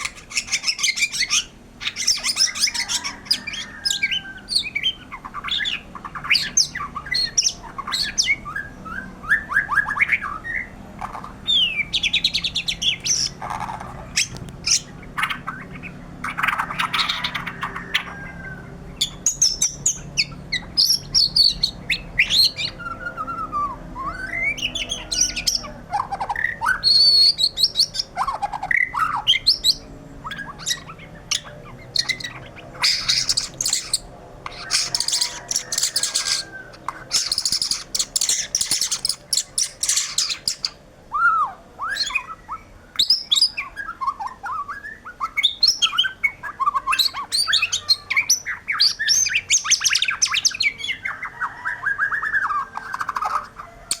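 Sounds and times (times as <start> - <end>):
harsh raspy bird notes: 0.0 - 54.0
shama singing whistled song: 0.3 - 10.8, 11.5 - 13.4, 16.7 - 25.6, 26.3 - 53.2.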